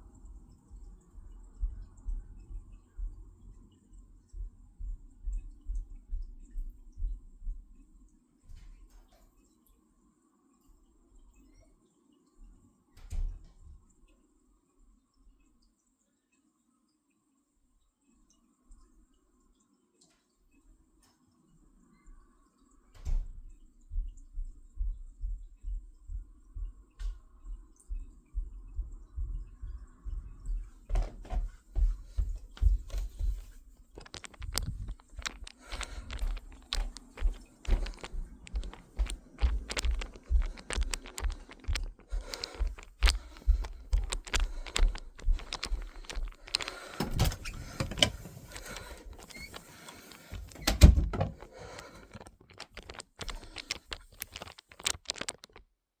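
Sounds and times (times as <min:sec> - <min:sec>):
objects being handled: 0:30.8 - 0:55.6.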